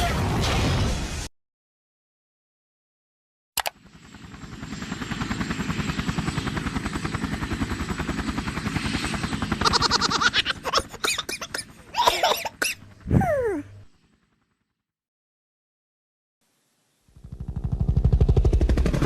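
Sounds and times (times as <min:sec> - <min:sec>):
helicopter rotor chop: 0:03.6 - 0:14.6, 0:17.2 - 0:19.0.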